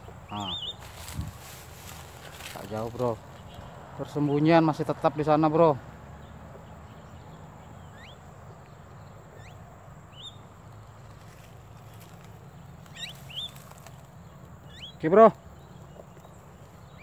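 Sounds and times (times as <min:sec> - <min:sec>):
bird whistled calls: 0:07.9 - 0:08.2, 0:12.9 - 0:13.6.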